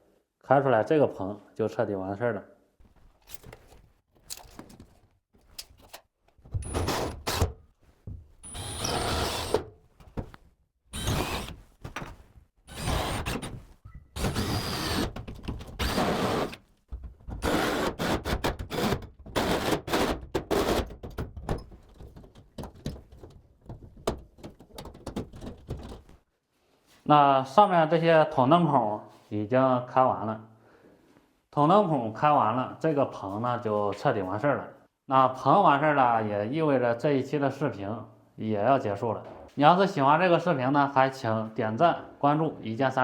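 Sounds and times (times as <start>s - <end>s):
cutting into plasterboard: 6.5s - 7.6s, 8.4s - 10.3s, 10.9s - 16.6s, 17.3s - 21.1s.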